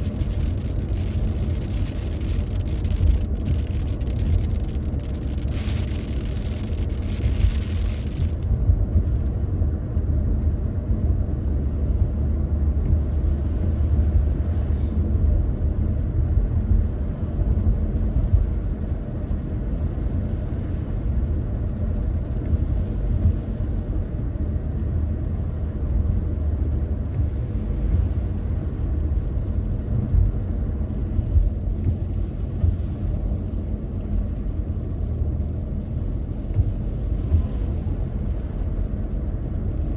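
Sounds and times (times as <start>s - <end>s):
car engine and tyres rumbling: 0.0s - 39.9s
brief hiss: 14.7s - 15.0s.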